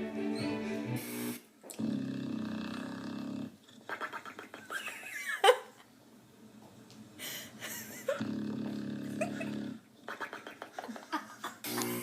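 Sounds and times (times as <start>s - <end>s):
dog snoring: 1.7s - 3.6s, 8.2s - 9.8s.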